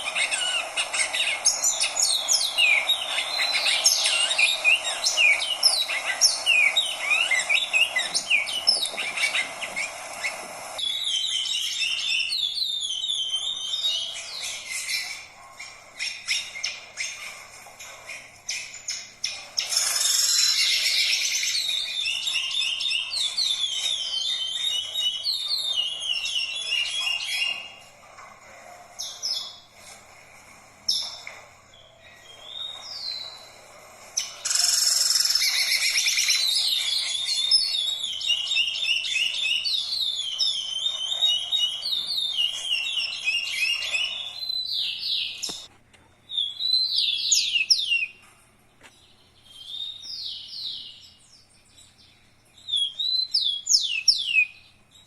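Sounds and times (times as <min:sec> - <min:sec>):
songbird singing: 0:00.0 - 0:15.3, 0:18.4 - 0:27.8, 0:34.2 - 0:45.7
bird calls: 0:00.0 - 0:28.0, 0:30.8 - 0:45.7.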